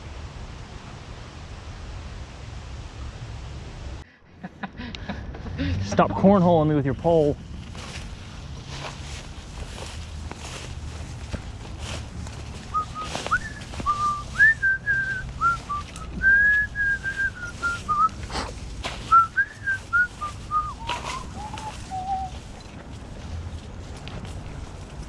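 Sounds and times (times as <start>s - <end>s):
person whistling a tune: 12.7s - 18.2s, 19.1s - 22.4s.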